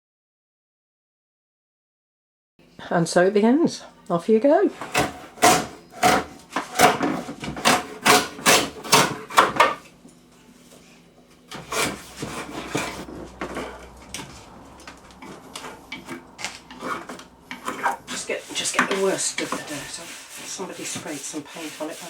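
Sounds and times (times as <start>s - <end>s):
scraping strokes on wood: 4.7s - 9.8s, 10.7s - 22.0s.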